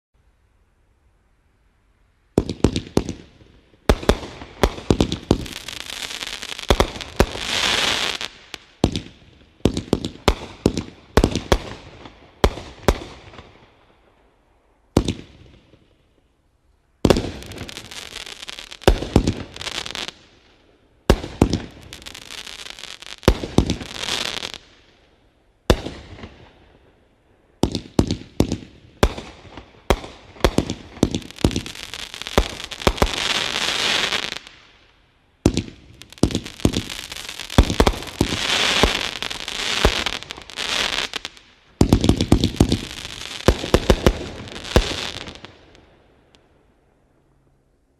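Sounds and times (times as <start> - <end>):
fireworks sharp bangs: 2.4 - 13.6, 17.0 - 20.4, 21.0 - 24.8, 27.6 - 34.7, 35.4 - 46.0.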